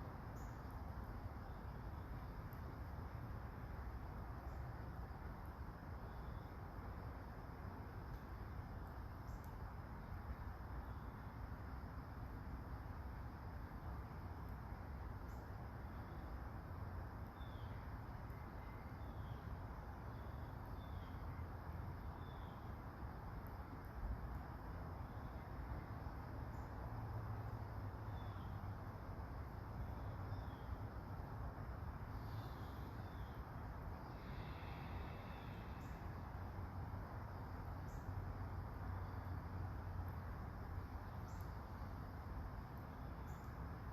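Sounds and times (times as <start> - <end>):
soft rain falling: 0.0 - 43.9.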